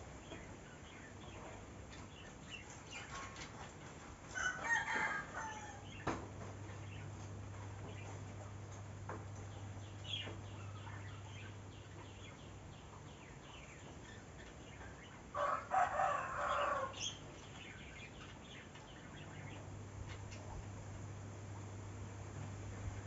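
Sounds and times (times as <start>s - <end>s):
small birds chirping: 0.0s - 3.7s, 5.8s - 15.4s, 16.4s - 20.8s
steady low hum: 0.0s - 23.0s
rooster crowing: 4.4s - 6.0s, 15.4s - 17.0s.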